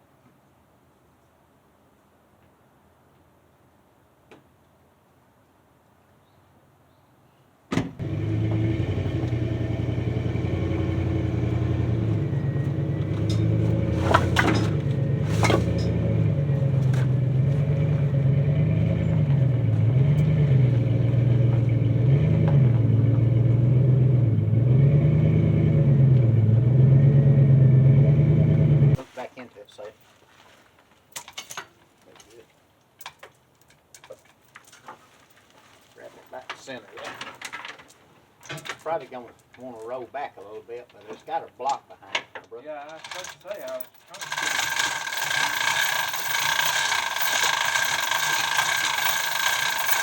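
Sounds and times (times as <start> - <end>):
engine running: 8.0 - 29.0, 44.2 - 50.0.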